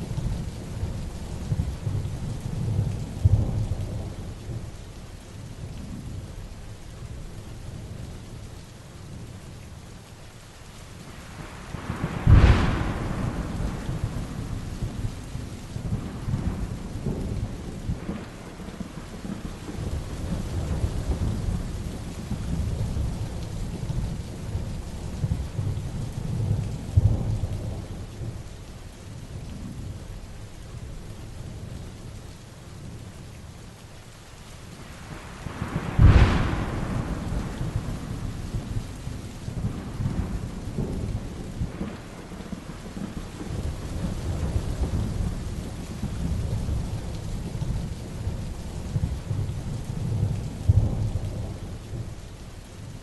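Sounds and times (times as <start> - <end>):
heavy rain falling: 0.0 - 53.0
thunder rumbling: 11.2 - 28.5, 34.8 - 52.3.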